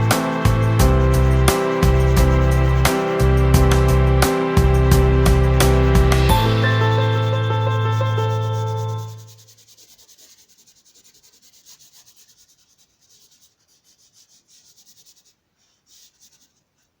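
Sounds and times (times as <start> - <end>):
background music: 0.0 - 9.4
drawing tool rubbing on paper: 0.0 - 17.0.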